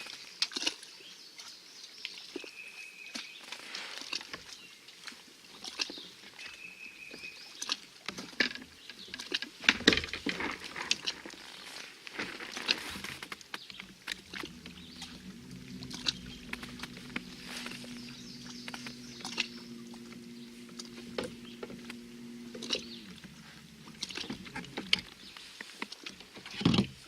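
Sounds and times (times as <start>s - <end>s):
fishing gear clicking and rattling: 7.7s - 11.6s, 12.2s - 27.0s
low steady hum: 12.9s - 27.0s.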